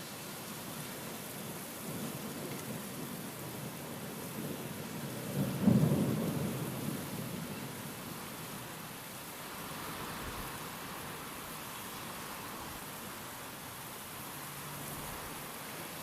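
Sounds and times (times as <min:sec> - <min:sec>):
steady rain: 0:00.0 - 0:16.0
thunder clap rumbling: 0:05.4 - 0:07.5.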